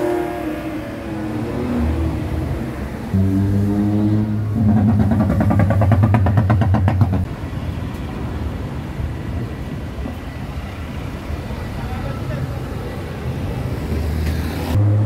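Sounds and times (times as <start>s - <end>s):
street traffic: 0.0s - 15.0s
car engine with pulsing rattle: 4.4s - 7.3s.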